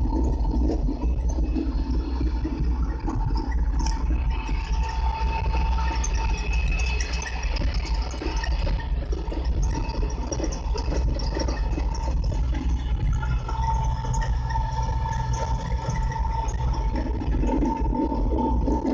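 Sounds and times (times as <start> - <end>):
steady engine whine: 0.0 - 18.9.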